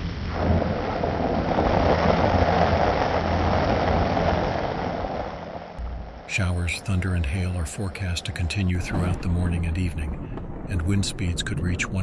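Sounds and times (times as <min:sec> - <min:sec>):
heavy rain on road: 0:00.0 - 0:05.8
low rumble: 0:00.0 - 0:12.0.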